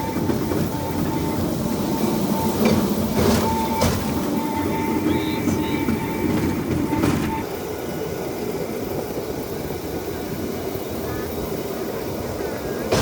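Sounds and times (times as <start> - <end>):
thin high tone: 0.0 - 7.5
wheel clacks on track: 0.0 - 7.6, 8.4 - 13.0
wheels rumbling on rail track: 0.0 - 13.0.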